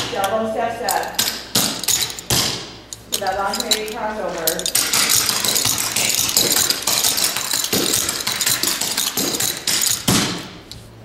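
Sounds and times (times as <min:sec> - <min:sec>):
tap shoes clicking on hard floor: 0:04.4 - 0:10.5.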